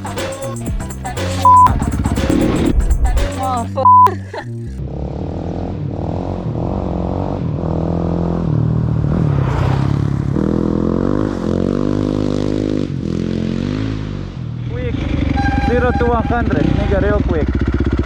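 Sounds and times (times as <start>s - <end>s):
motorcycle engine revving: 4.8s - 18.0s.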